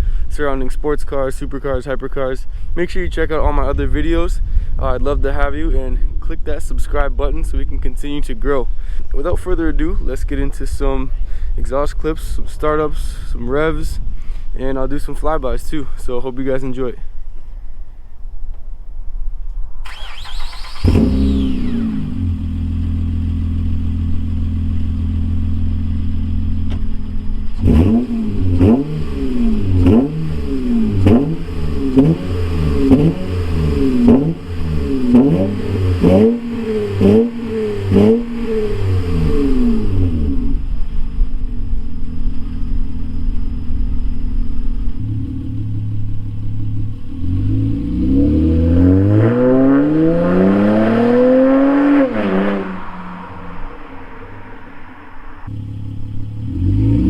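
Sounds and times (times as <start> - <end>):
car engine starting: 19.8 - 57.0
car engine idling and revving: 19.9 - 57.0.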